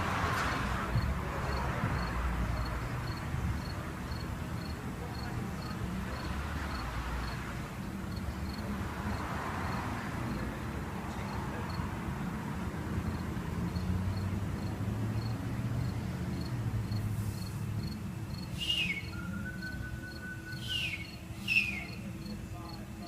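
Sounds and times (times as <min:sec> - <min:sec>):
faint high chirp: 0:18.6 - 0:22.0.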